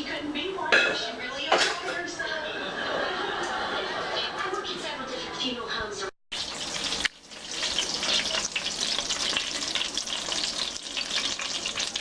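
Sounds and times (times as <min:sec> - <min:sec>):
food sizzling in a pan: 0:06.3 - 0:12.0.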